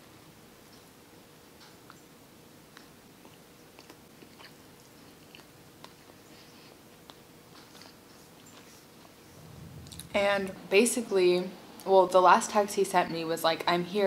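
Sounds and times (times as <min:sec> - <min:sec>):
person chewing food: 0:02.7 - 0:08.9.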